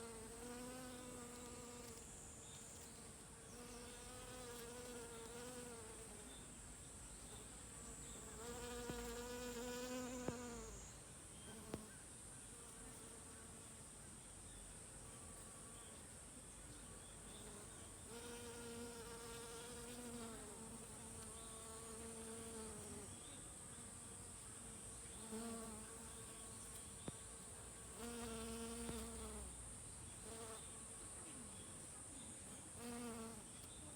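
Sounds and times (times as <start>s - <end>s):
honeybees buzzing: 0.0s - 6.4s, 7.3s - 11.8s, 17.1s - 29.6s
faint high-pitched hiss: 0.0s - 33.9s.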